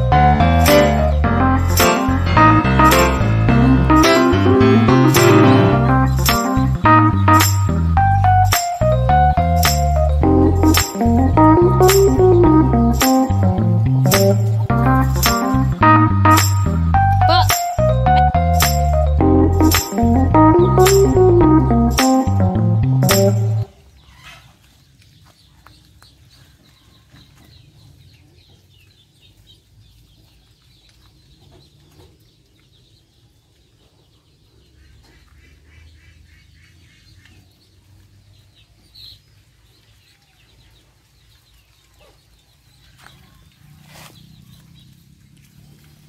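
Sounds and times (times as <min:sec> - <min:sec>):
high-pitched animal calls: 0:17.1 - 0:18.6.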